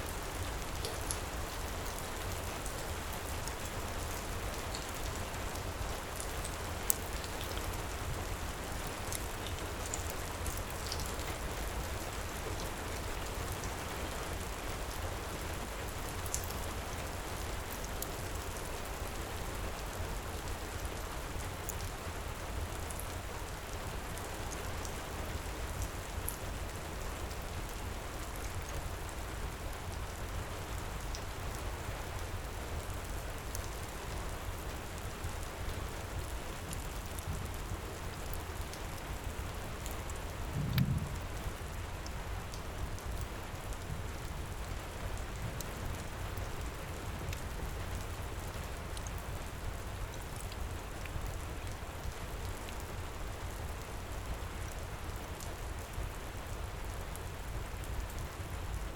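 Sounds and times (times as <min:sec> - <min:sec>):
heavy rain pouring: 0:28.8 - 0:58.9.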